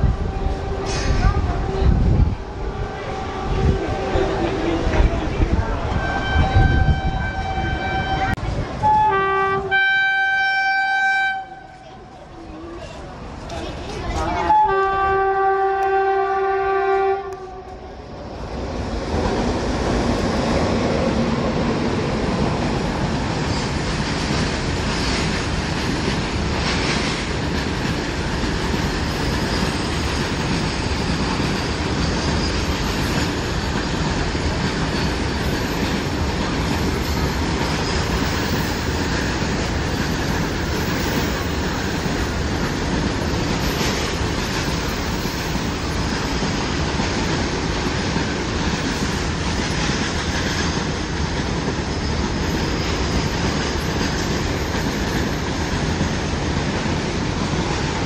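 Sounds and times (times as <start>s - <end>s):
freight train passing: 0.0s - 58.0s
wheels clattering on rails: 19.2s - 58.0s.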